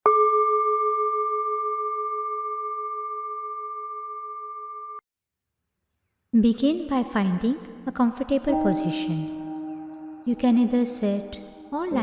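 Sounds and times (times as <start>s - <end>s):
singing bowl ringing: 0.1s - 5.0s, 8.6s - 11.8s.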